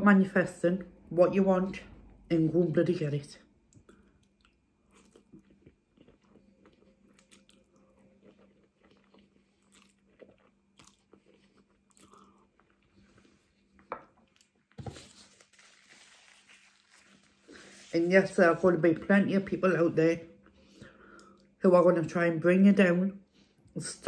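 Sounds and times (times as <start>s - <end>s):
person chewing food: 3.7s - 15.6s.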